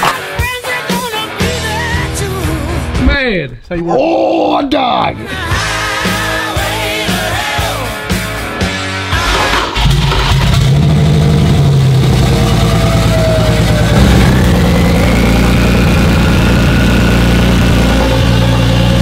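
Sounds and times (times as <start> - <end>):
car engine revving: 9.1 - 19.0
faint rising whine: 11.8 - 19.0.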